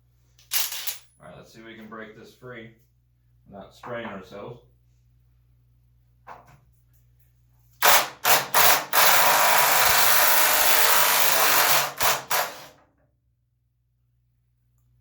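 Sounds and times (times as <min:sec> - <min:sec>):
impact wrench hammering: 0:07.8 - 0:12.8.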